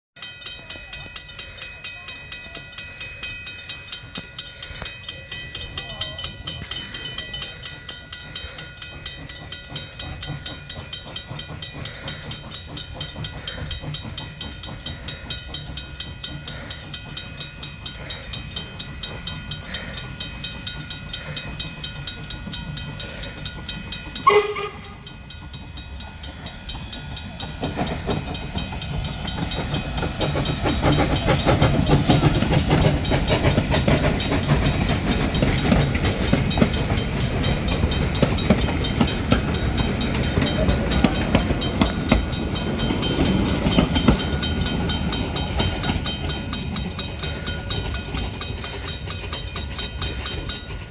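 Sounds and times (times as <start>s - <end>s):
level-crossing bell ringing: 0.2s - 50.9s
steam train rumbling: 0.2s - 50.9s
locomotive whistle blast: 24.2s - 25.2s.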